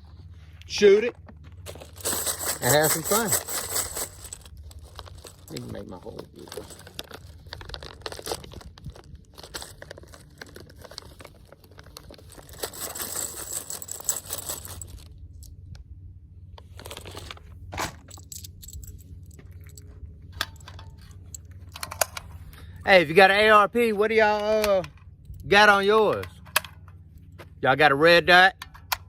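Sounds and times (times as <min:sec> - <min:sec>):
ammunition rustling and clicking: 0:01.7 - 0:15.1, 0:18.0 - 0:22.3.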